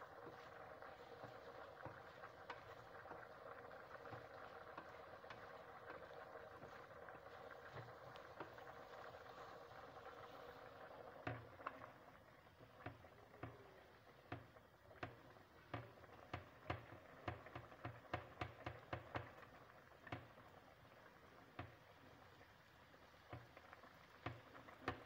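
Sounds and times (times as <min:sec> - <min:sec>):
food sizzling in oil: 0:00.0 - 0:14.5
oil popping and crackling: 0:00.0 - 0:25.0.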